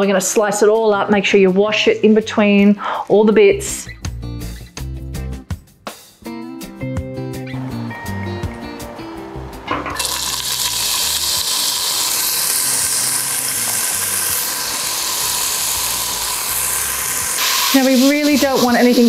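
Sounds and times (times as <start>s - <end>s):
vegetables sizzling in hot oil: 9.9s - 19.0s.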